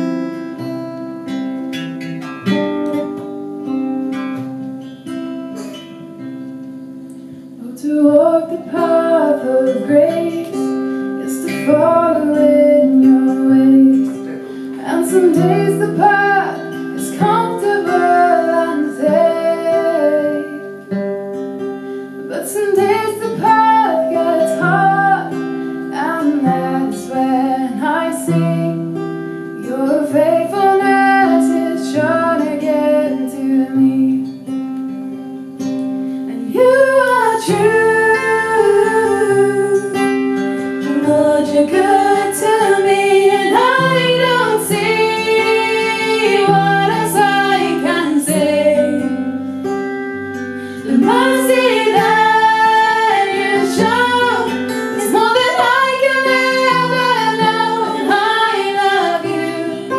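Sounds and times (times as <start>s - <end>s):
acoustic guitar: 0.0s - 59.9s
woman singing: 7.6s - 21.0s, 22.2s - 29.0s, 29.6s - 34.5s, 36.3s - 49.4s, 50.6s - 59.9s.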